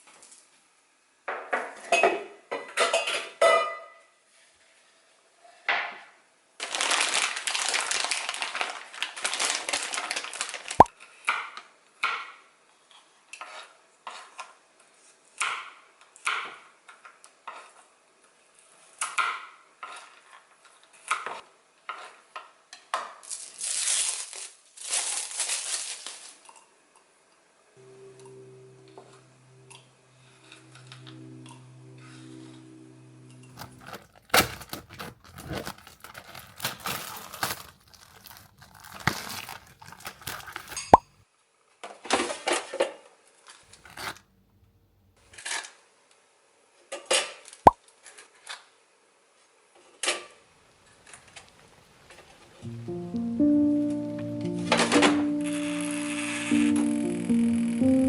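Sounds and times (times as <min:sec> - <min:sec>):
rustling: 0:33.6 - 0:41.1, 0:43.7 - 0:44.3.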